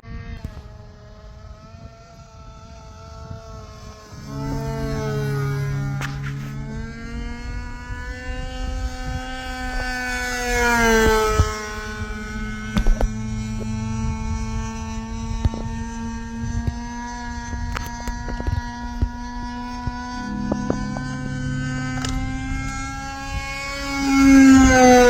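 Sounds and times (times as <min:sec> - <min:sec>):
model airplane engine buzzing: 0:00.0 - 0:25.0.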